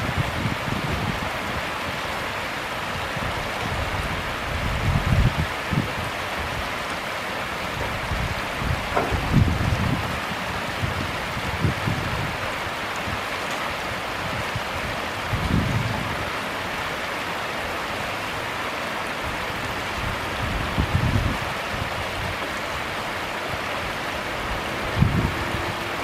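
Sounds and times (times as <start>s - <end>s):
flowing stream water: 0.0s - 26.0s
low thumps: 8.8s - 10.2s.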